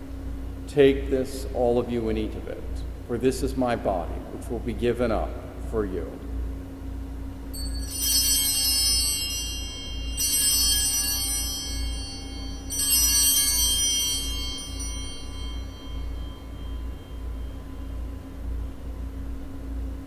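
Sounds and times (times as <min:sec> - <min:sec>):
altar bells ringing: 0:07.5 - 0:19.0.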